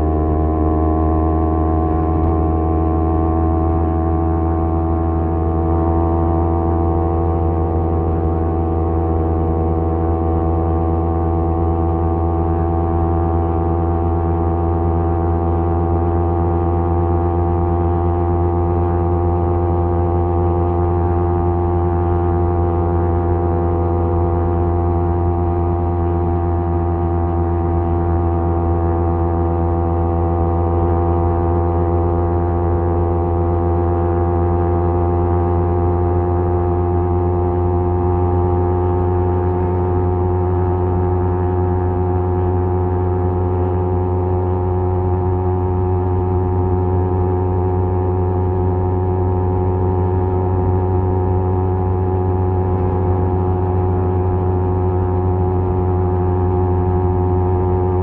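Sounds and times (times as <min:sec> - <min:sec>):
motorcycle exhaust drone: 0:00.0 - 0:58.0.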